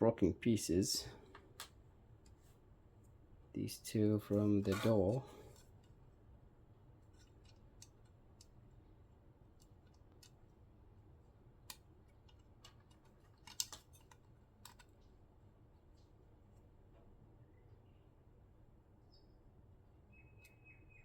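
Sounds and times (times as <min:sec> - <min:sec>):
clicks of plastic pieces handled: 0:11.7 - 0:15.0.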